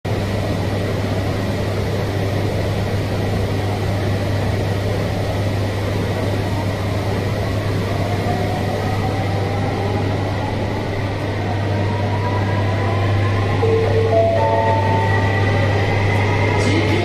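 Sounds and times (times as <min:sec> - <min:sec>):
train humming at platform: 0:00.0 - 0:17.0.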